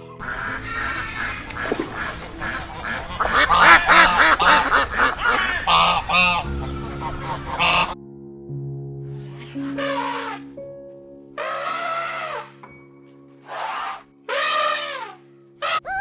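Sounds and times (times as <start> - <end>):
flock of birds calling: 0.2 - 8.0.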